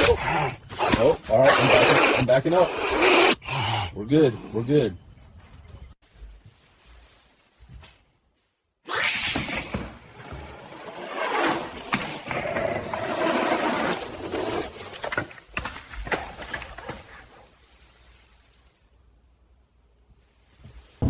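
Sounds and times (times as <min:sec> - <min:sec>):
wild cat hissing and growling: 0:00.0 - 0:04.7.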